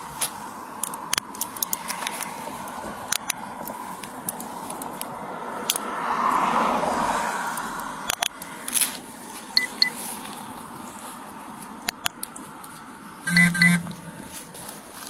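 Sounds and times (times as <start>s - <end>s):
car passing: 5.2s - 8.0s.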